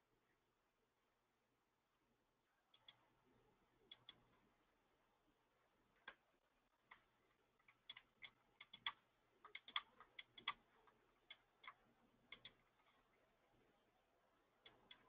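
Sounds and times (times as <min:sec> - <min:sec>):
computer keys clicking: 0:02.7 - 0:03.0, 0:03.8 - 0:04.4, 0:06.9 - 0:13.1, 0:14.6 - 0:15.0
mouse buttons clicking: 0:02.7 - 0:03.0, 0:03.8 - 0:04.4, 0:06.9 - 0:13.1.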